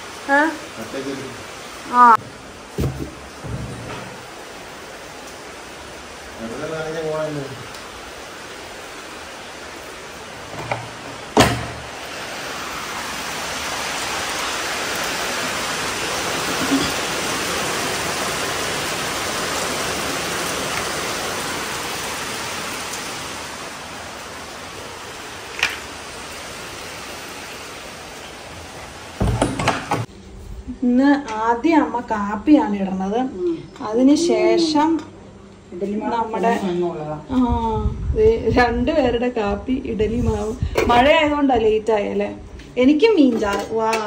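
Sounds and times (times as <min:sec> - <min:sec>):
heavy rain hissing: 0:00.0 - 0:30.1
sharp knocks: 0:02.2 - 0:04.2, 0:10.5 - 0:11.9, 0:29.2 - 0:30.1.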